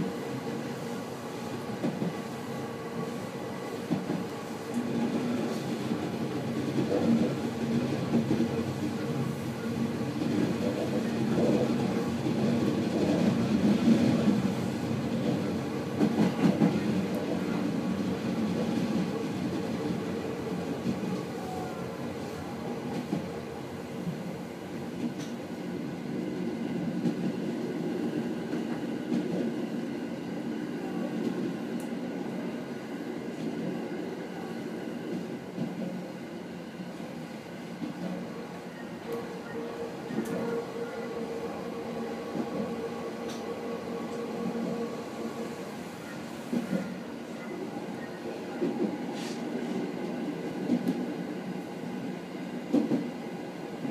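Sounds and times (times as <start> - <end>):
electric train rumbling on rails: 0.0 - 53.9.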